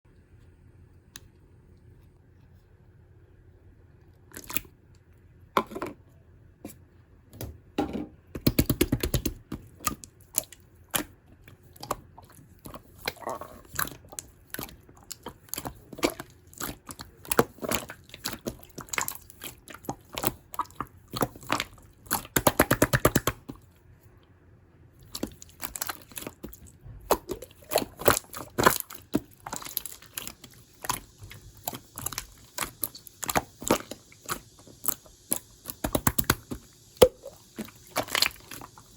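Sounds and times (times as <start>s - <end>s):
slime squished by hand: 8.4s - 23.7s, 25.0s - 38.8s.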